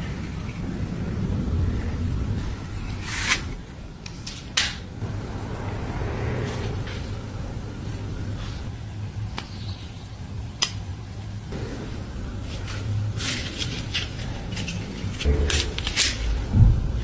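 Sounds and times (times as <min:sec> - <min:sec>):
low steady hum: 0:00.0 - 0:17.0
metal clinking and scraping: 0:11.8 - 0:16.5.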